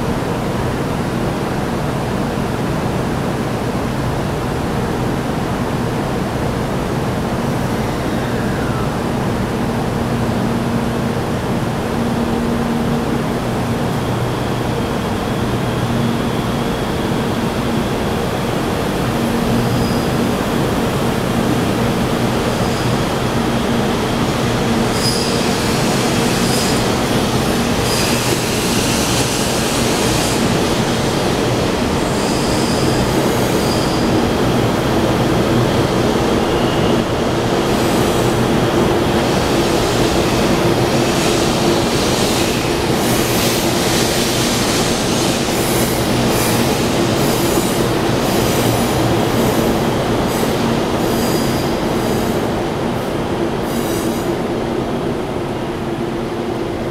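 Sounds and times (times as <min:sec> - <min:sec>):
electric train rumble: 0:00.0 - 0:56.9
train wheel squeals: 0:07.6 - 0:09.2, 0:14.0 - 0:34.4, 0:35.8 - 0:38.6, 0:39.3 - 0:52.4.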